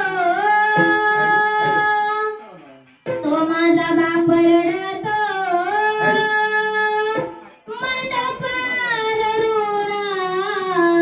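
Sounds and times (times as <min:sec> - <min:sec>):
high voice singing with vibrato: 0:00.0 - 0:02.4, 0:03.2 - 0:11.0.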